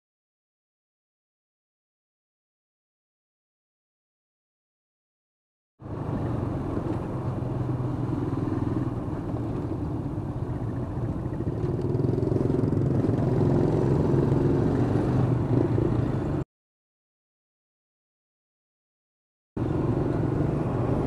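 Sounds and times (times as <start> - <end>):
vehicle engine drone: 5.8 - 16.4, 19.6 - 21.0.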